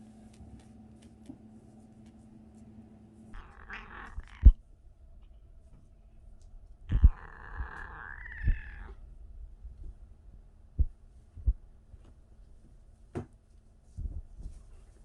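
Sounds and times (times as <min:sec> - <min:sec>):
kitten mewing: 0:03.4 - 0:04.6, 0:06.9 - 0:09.0
dull low thumps: 0:08.4 - 0:11.7.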